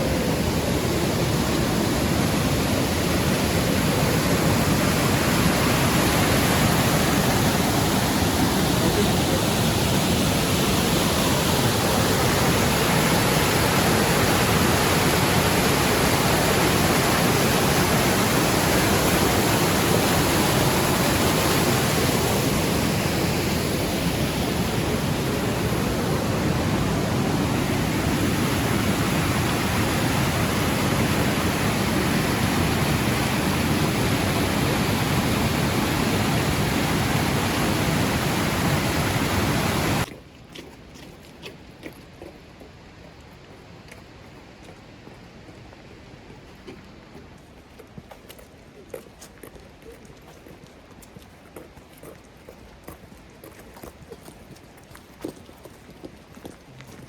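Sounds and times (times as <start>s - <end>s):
waterfall rushing: 0.0s - 40.1s.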